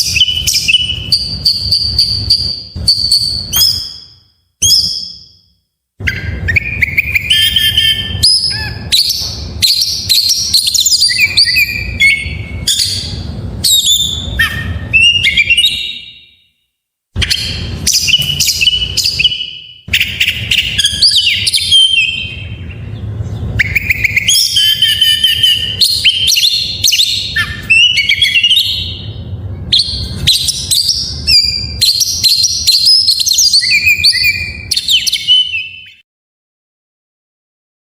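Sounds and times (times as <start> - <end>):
songbird singing whistles and trills: 0.0 - 16.5, 17.2 - 36.0.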